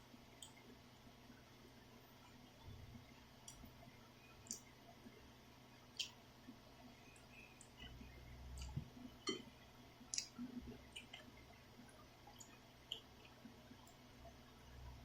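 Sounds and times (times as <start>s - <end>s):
person chewing noodles: 10.1s - 11.3s.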